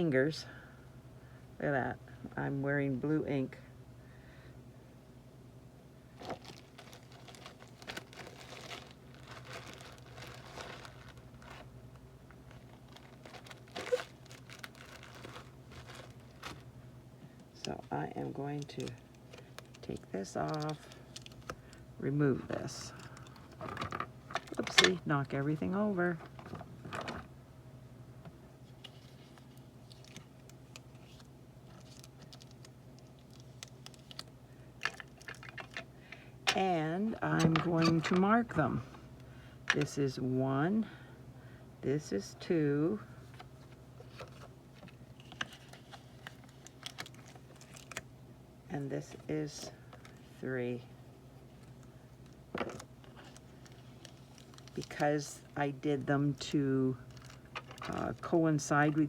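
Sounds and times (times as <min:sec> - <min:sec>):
steady low hum: 0:00.0 - 0:59.0
paper and craft tools handled: 0:06.2 - 0:11.7, 0:12.4 - 0:16.6
paper rustling and crinkling: 0:06.2 - 0:11.7, 0:12.3 - 0:16.7, 0:28.7 - 0:35.8, 0:43.3 - 0:48.0, 0:52.5 - 0:55.0.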